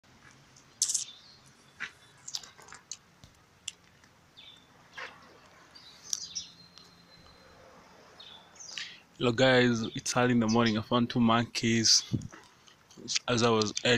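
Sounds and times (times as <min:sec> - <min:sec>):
birds chirping: 0:00.1 - 0:13.9.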